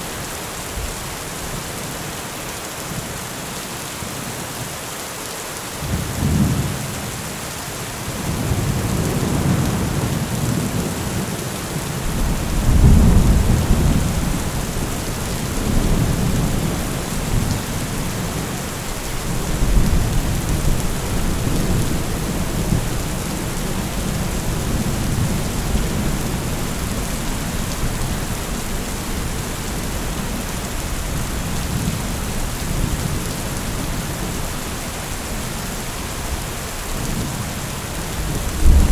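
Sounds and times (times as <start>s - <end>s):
heavy rain: 0.0s - 38.9s
thunder rumbling: 12.0s - 34.8s, 38.2s - 38.9s.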